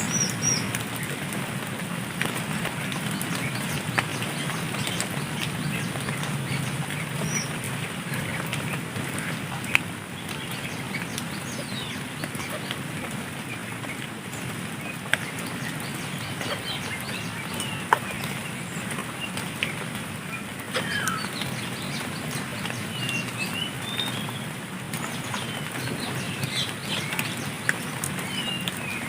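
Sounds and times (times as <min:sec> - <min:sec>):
bird chirps: 0:20.7 - 0:22.0.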